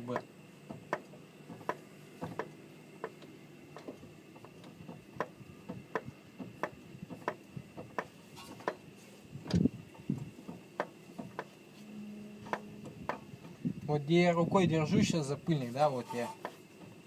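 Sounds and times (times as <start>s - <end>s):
car suspension knocking: 0.1s - 8.8s, 9.5s - 11.6s.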